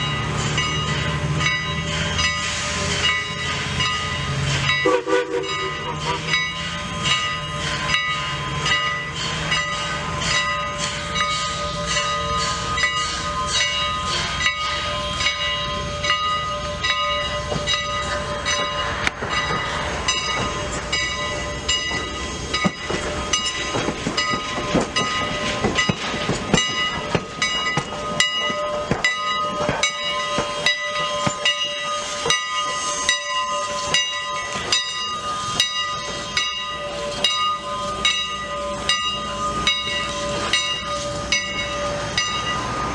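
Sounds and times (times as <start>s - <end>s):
steady high ringing tones: 0.0s - 42.9s
steam hiss: 0.1s - 42.9s.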